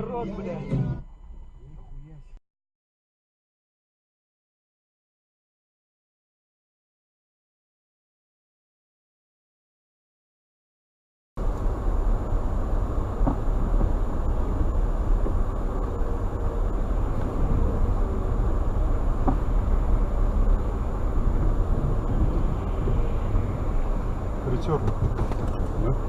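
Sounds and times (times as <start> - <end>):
car road and engine rumble: 0.0 - 2.4, 11.4 - 26.0.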